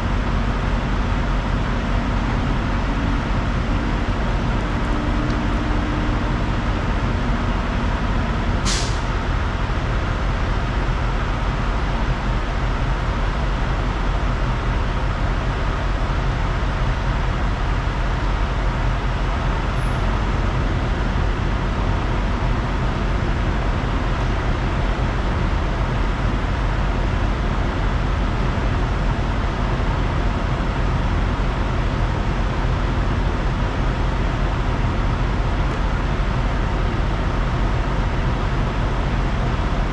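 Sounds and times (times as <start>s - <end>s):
truck engine and road drone: 0.0s - 39.9s
sharp hiss of air: 8.6s - 9.1s.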